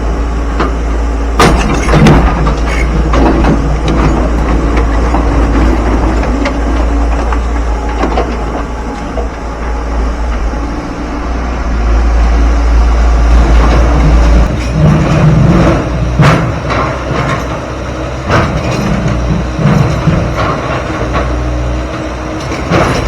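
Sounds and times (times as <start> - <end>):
diesel engine rumble: 0.0 - 23.0
rocks knocking and clanking: 1.4 - 9.6, 13.6 - 23.0.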